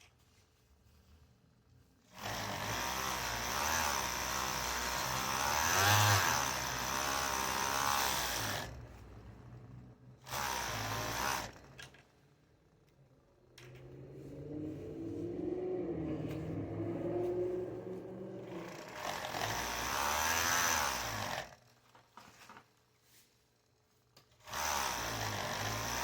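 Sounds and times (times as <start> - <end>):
electric sewing machine stitching: 2.1 - 8.8, 10.2 - 11.8, 18.4 - 21.7, 24.4 - 26.0.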